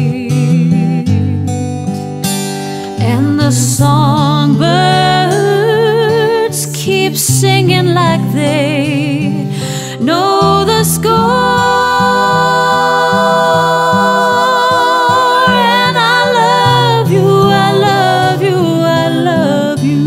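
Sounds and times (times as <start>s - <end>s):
person singing long wordless note: 10.1s - 20.0s.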